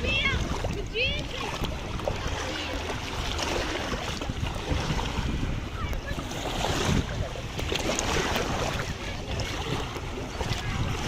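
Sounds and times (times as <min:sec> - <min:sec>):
sea surf washing at shore: 0:00.0 - 0:11.0
wind rumbling on microphone: 0:00.0 - 0:11.0.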